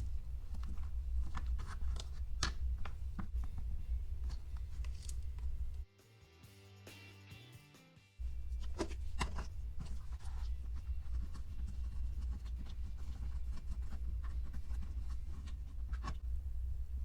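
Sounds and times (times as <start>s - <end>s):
plastic molds clicking and tapping: 0.0s - 5.8s, 8.4s - 16.2s
background music: 5.9s - 9.0s
low rumble: 14.1s - 17.0s.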